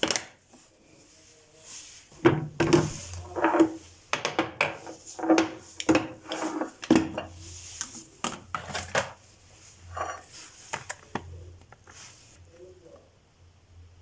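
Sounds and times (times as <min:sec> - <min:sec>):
kitchenware clinking and clattering: 0:02.2 - 0:07.4, 0:08.2 - 0:09.2, 0:09.8 - 0:11.3.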